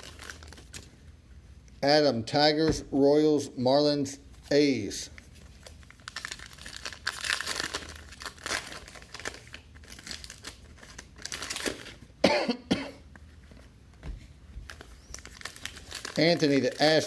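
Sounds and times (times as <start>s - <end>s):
wrappers crinkling and rustling: 0.0s - 0.9s, 5.1s - 12.0s, 14.6s - 17.0s
person coughing: 12.2s - 13.1s.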